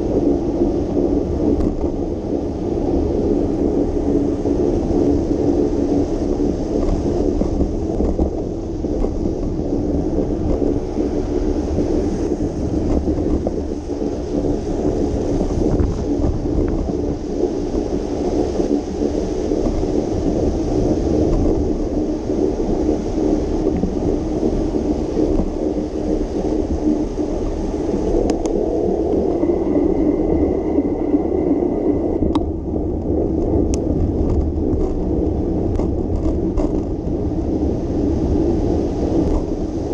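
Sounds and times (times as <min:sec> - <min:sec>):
road noise while cycling: 0:00.0 - 0:39.9
wind on microphone: 0:00.0 - 0:39.9.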